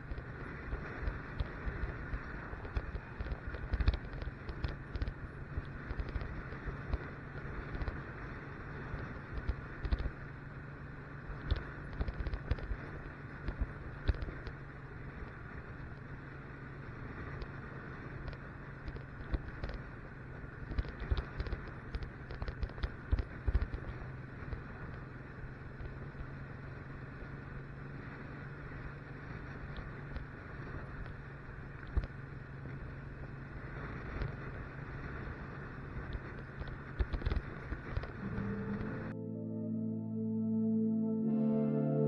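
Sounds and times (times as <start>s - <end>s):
knocks and crackles: 0.0s - 8.2s, 8.9s - 10.2s, 11.3s - 14.6s, 18.1s - 26.3s, 29.5s - 39.1s
motorcycle engine running: 0.0s - 39.2s.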